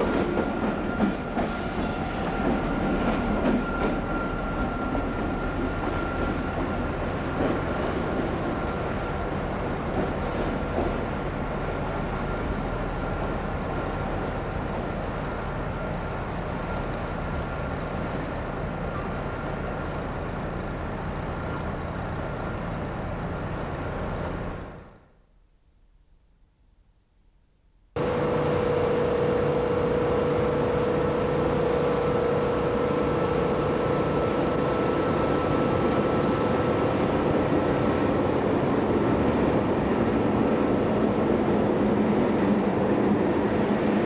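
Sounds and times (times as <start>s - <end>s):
locomotive running: 0.0s - 25.0s, 28.0s - 44.0s
high whine: 28.0s - 39.1s.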